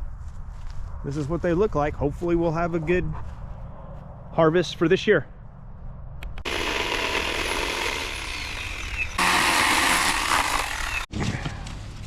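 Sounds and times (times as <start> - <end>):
power tool running: 6.4 - 11.1.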